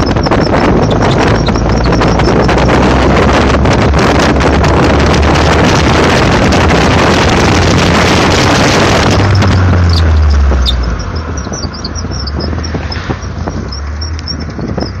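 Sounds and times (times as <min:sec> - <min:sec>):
high-pitched squeaks: 0:00.0 - 0:03.3, 0:08.3 - 0:15.0
sports car engine: 0:00.0 - 0:15.0
wind noise: 0:00.0 - 0:15.0.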